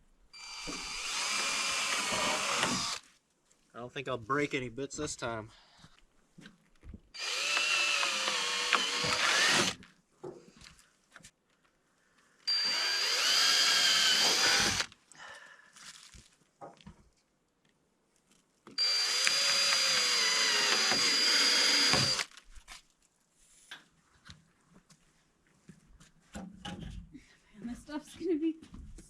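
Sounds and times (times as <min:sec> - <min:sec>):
power drill through plastic: 0:00.4 - 0:03.0, 0:07.1 - 0:09.8, 0:12.5 - 0:15.0, 0:18.8 - 0:22.4.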